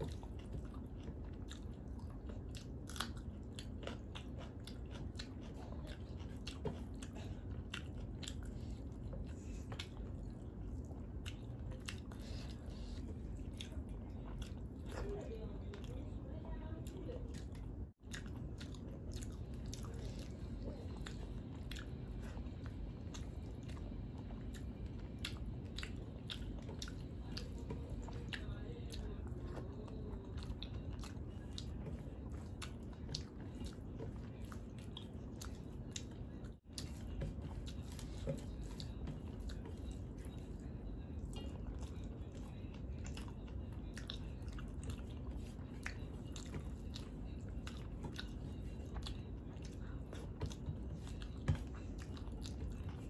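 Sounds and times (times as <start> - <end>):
chewing with wet clicks: 0.0 - 53.0.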